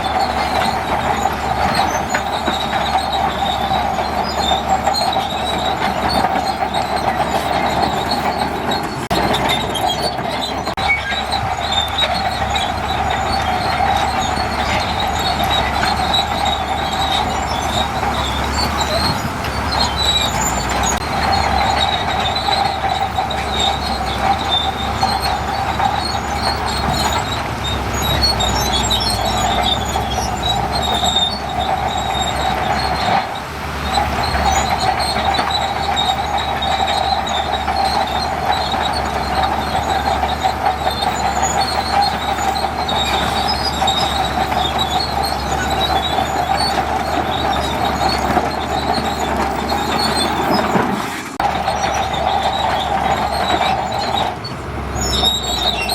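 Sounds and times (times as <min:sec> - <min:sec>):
bulldozer low rumble: 0:00.0 - 0:55.9
high metallic squeal: 0:00.0 - 0:55.9.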